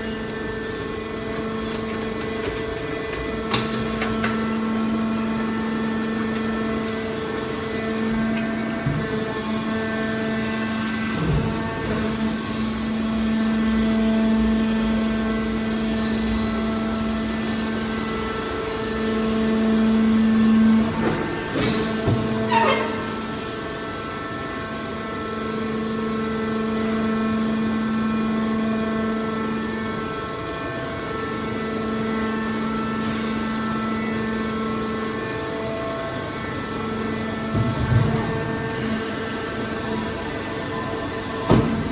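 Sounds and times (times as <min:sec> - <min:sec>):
hydraulic motor drone: 0:00.0 - 0:41.9
machine hum with whine: 0:00.0 - 0:41.9
machine clunk: 0:00.2 - 0:07.5, 0:08.1 - 0:09.6, 0:20.8 - 0:23.4, 0:41.4 - 0:41.9.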